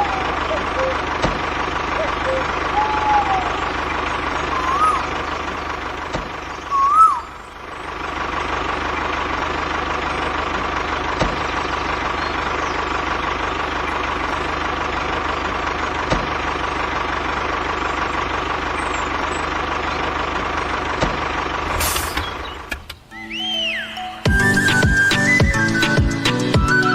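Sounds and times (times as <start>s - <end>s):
short warbling whistle: 0.5s - 1.0s, 2.0s - 3.6s, 4.5s - 5.1s, 6.7s - 7.4s, 23.1s - 26.9s.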